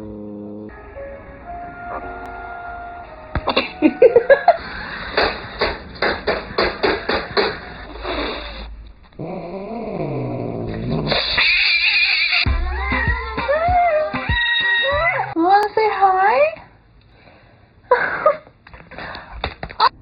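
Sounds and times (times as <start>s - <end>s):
cat meowing: 12.9s - 15.4s.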